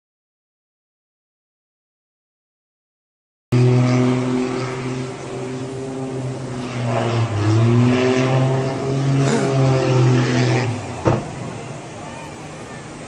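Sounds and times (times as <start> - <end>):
propeller aircraft engine drone: 3.5 - 13.0.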